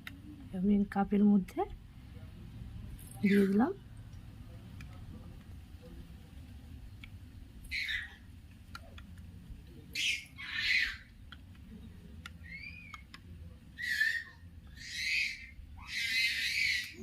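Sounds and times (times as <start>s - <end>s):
bird squawking: 7.7s - 8.3s, 10.0s - 11.2s, 13.8s - 17.0s.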